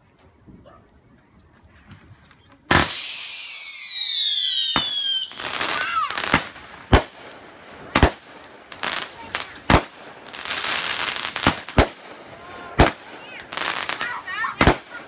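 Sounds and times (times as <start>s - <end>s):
firework whistles shrieking: 2.2s - 7.0s.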